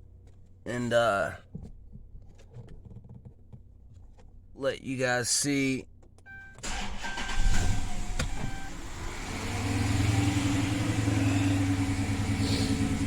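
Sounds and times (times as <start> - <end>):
car engine starting and idling: 6.3 - 13.0.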